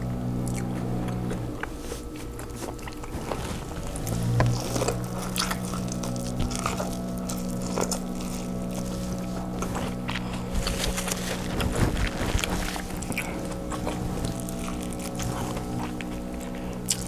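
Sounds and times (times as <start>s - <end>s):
eating and handling food: 0.0s - 17.0s
low motor hum: 0.0s - 17.0s.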